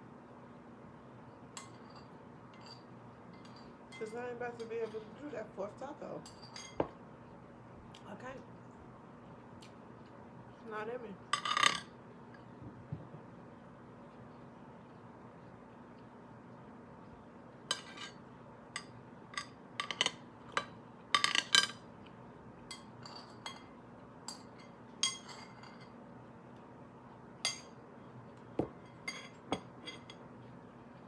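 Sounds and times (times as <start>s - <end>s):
metal spoon clinking on plate: 1.6s - 4.2s, 6.2s - 6.9s, 17.7s - 18.2s, 22.7s - 26.0s, 27.4s - 27.8s, 28.8s - 30.2s.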